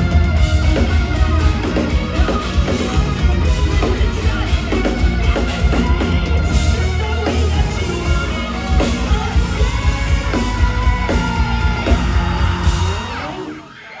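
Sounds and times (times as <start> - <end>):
pounding drum beat: 0.0 - 13.5
heavy bass: 0.0 - 13.6
person singing and yelling: 0.0 - 14.0.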